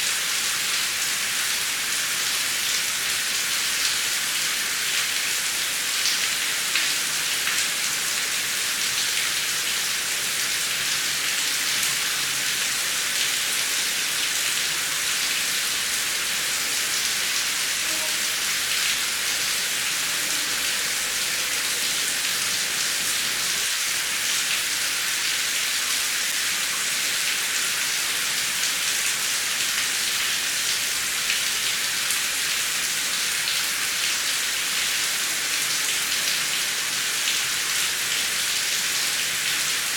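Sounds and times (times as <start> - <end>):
heavy rain hissing: 11.6 - 24.2.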